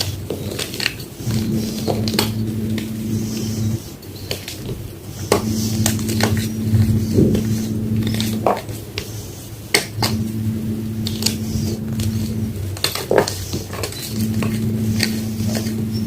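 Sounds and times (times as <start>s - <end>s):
low steady hum: 1.2s - 4.0s, 5.2s - 9.0s, 9.8s - 16.0s.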